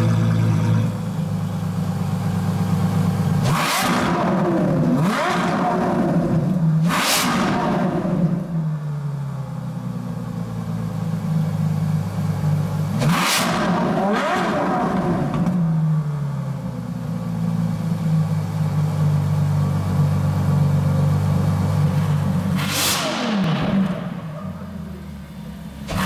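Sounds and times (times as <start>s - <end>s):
car engine idling: 0.0s - 6.9s, 8.2s - 13.0s, 14.9s - 26.0s
engine revving: 3.4s - 8.6s, 12.9s - 15.8s, 22.0s - 24.6s.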